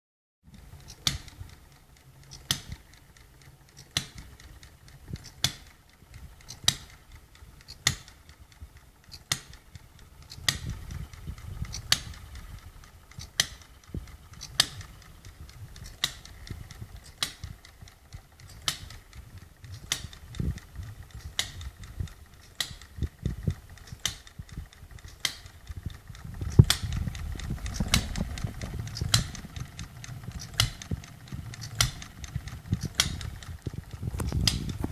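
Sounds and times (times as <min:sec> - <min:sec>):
hit-and-miss engine snapping: 0:00.5 - 0:34.9
low rumble: 0:19.0 - 0:34.9.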